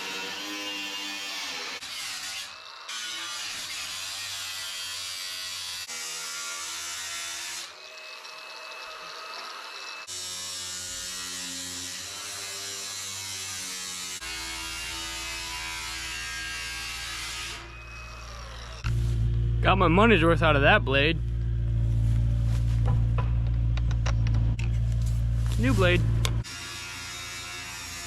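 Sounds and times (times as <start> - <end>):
power tool cutting sheet steel: 0.0 - 18.8, 25.8 - 28.0.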